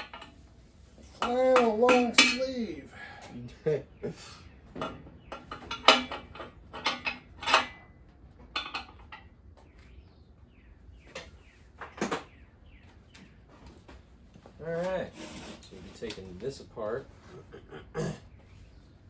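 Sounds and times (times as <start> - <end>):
metal bolts clinking: 1.0 - 2.8, 4.8 - 8.0.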